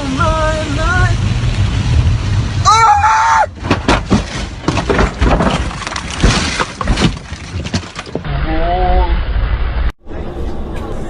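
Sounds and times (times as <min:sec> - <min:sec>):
car crash impacts and crunching: 0:03.5 - 0:08.3
glass breaking: 0:03.6 - 0:08.2.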